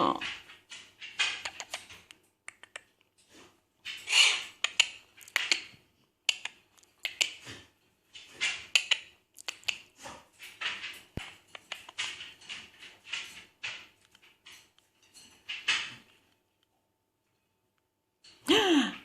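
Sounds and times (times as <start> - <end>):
parrot clicks: 1.1 - 1.9, 2.5 - 2.9, 4.3 - 5.7, 6.3 - 7.4, 8.7 - 9.8
parrot chattering and squawking: 3.8 - 7.5.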